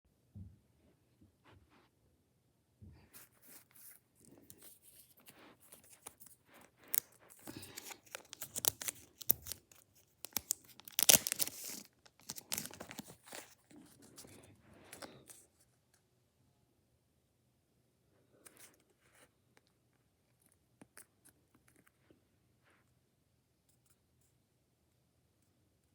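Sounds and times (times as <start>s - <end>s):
wrapper tearing and crinkling: 5.7s - 13.6s.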